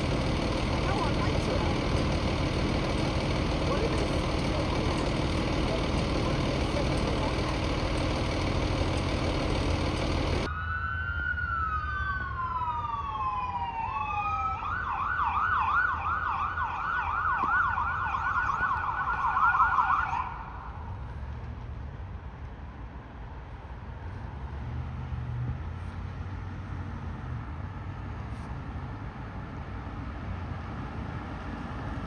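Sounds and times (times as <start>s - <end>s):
loud steady rumbling: 0.0s - 10.5s
emergency vehicle siren: 0.0s - 21.0s.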